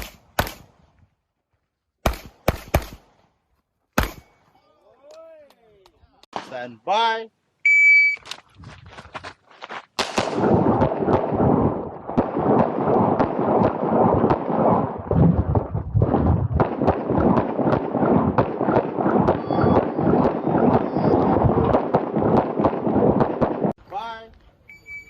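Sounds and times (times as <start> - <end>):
handgun shots: 4.0 - 4.3
start beep: 7.7 - 8.3.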